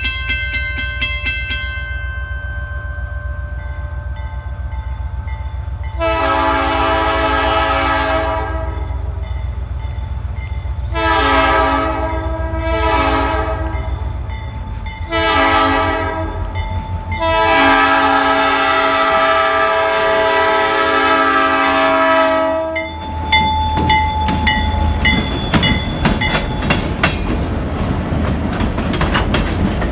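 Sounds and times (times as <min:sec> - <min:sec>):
train rumbling slowly: 0:00.0 - 0:29.9
train air horn blasts: 0:05.9 - 0:09.0, 0:10.9 - 0:14.0, 0:15.0 - 0:22.9.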